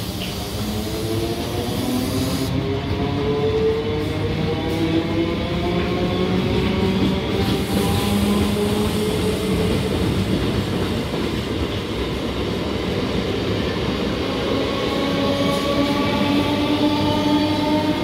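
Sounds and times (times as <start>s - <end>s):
train wheels rumbling on rail: 0.0s - 18.0s
train motor whine rising: 0.1s - 2.6s.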